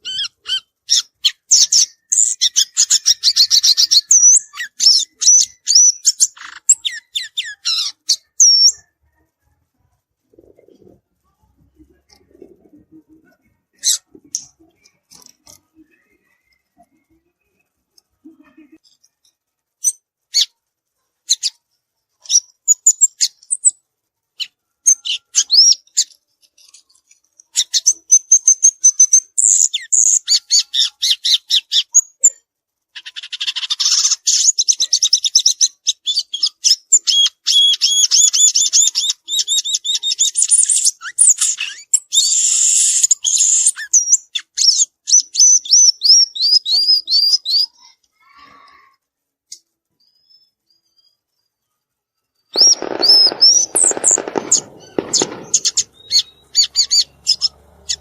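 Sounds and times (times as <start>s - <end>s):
bird chipping and twittering: 0.0s - 9.2s, 19.8s - 20.6s, 21.3s - 21.6s, 22.2s - 23.8s, 24.4s - 48.9s, 52.4s - 58.0s
bird chattering run: 52.5s - 58.0s.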